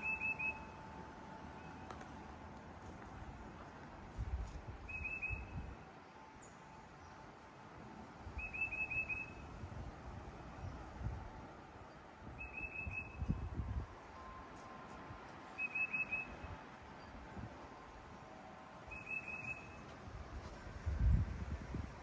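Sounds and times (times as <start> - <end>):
songbird whistling: 0.0 - 0.7, 4.9 - 5.7, 8.4 - 9.4, 12.4 - 13.4, 15.5 - 17.1, 18.9 - 19.9.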